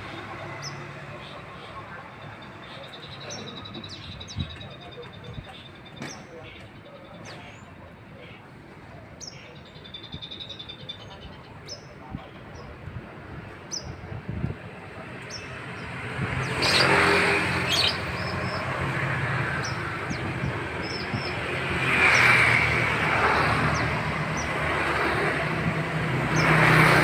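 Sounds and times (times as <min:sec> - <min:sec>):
road vehicles passing: 0:00.0 - 0:27.0.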